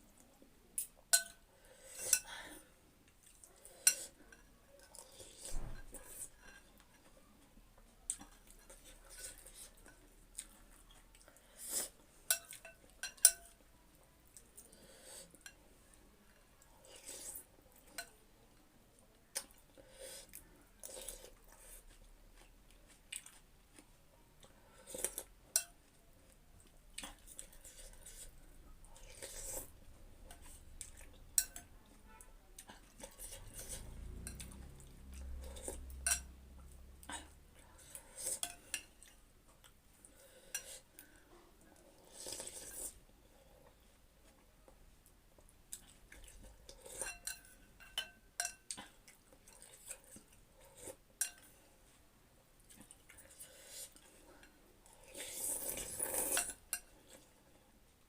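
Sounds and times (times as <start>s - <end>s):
cutlery clinking against bowl: 0.8s - 2.3s, 12.3s - 13.6s, 25.1s - 25.8s, 31.4s - 31.7s, 33.0s - 34.6s, 35.8s - 36.3s, 46.8s - 48.9s, 51.2s - 51.5s
chewing: 3.0s - 7.2s, 19.3s - 31.6s, 32.6s - 43.0s, 45.4s - 51.7s, 52.6s - 57.4s.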